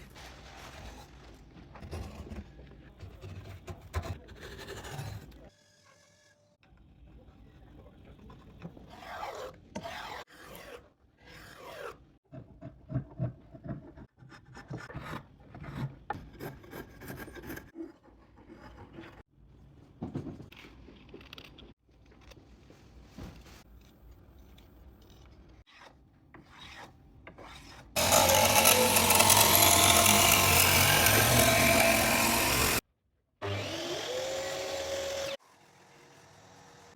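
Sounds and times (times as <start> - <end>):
wood being filed by hand: 25.7 - 32.8
loud power tool: 28.0 - 32.8, 33.4 - 36.9.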